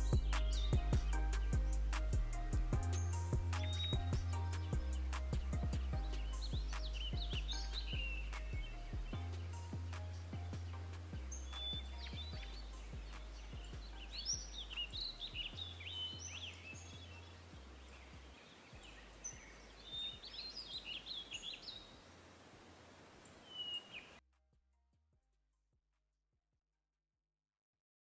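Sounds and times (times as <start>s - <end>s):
low hum: 0.0s - 15.9s
songbirds chirping and trilling: 0.0s - 24.2s.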